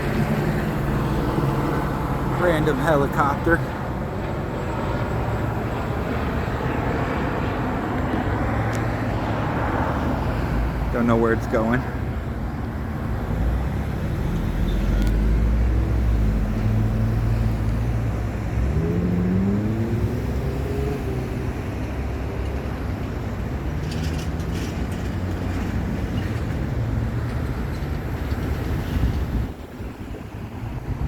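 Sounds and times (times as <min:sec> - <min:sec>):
freeway traffic noise: 0:00.0 - 0:31.0
vehicle engine accelerating: 0:13.4 - 0:22.8.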